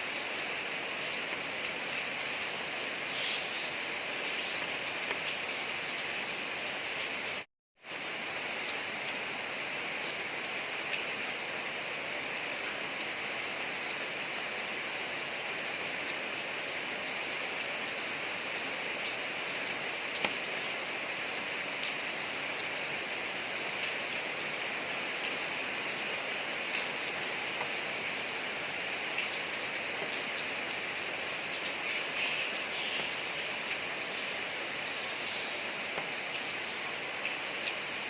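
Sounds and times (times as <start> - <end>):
rain falling on street: 0.0 - 38.0
raindrops ticking: 31.4 - 33.8, 35.3 - 37.8.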